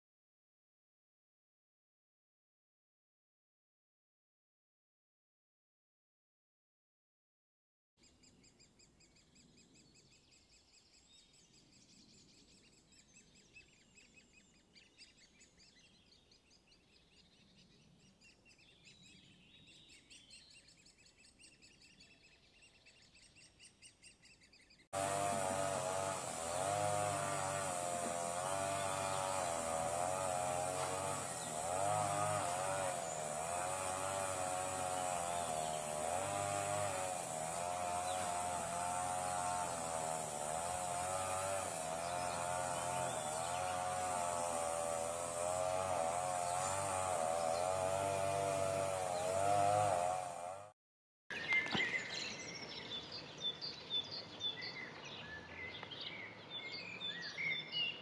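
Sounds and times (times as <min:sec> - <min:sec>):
bird chirps and trills: 0:08.0 - 0:24.9, 0:28.4 - 0:30.0, 0:31.2 - 0:44.2
wavering buzzing drone: 0:25.0 - 0:50.7.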